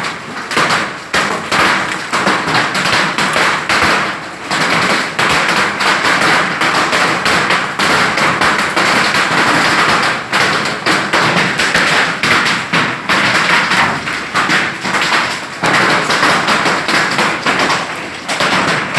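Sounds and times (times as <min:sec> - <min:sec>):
hail falling hard: 0:00.0 - 0:18.9.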